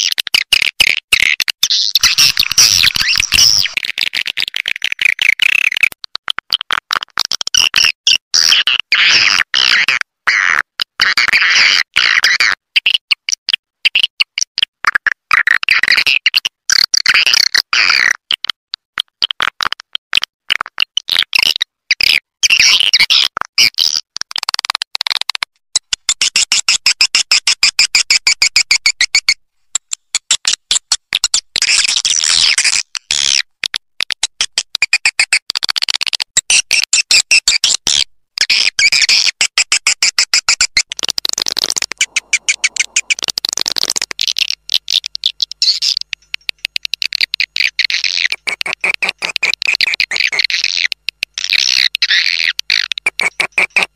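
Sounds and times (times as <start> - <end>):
swiftlet clicks and twittering chirps: 1.4 - 6.0, 36.8 - 53.9.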